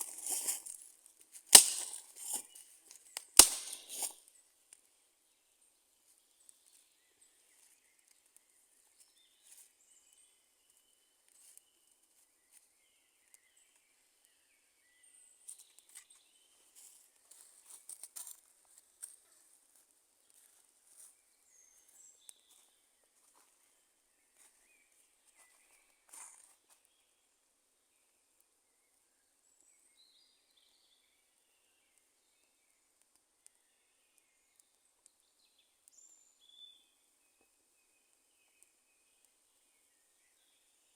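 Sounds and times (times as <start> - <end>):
light crackles: 0.0 - 4.9
dry wood snapping: 1.5 - 4.2.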